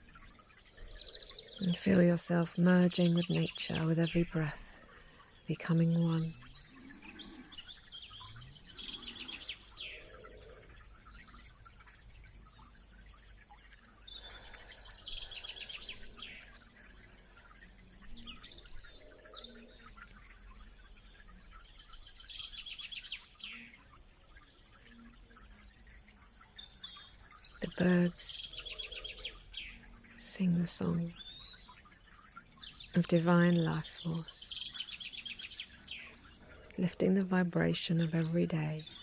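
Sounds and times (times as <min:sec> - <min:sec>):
songbird trilling: 0:00.0 - 0:11.6, 0:25.8 - 0:39.0
faint bird chirps: 0:00.0 - 0:39.0.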